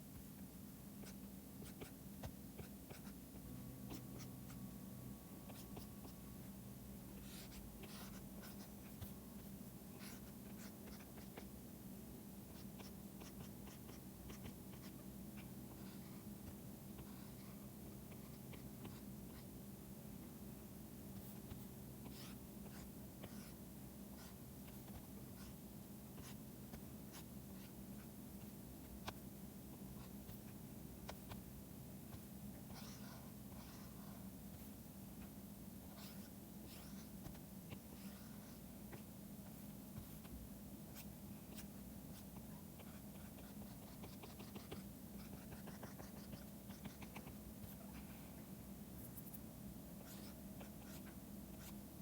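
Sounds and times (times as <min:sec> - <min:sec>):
low steady hum: 0:00.0 - 0:52.0
stylus scratching on drawing tablet: 0:01.0 - 0:03.2, 0:07.1 - 0:11.6, 0:12.5 - 0:19.5, 0:21.2 - 0:23.6, 0:32.1 - 0:48.1, 0:49.0 - 0:51.8.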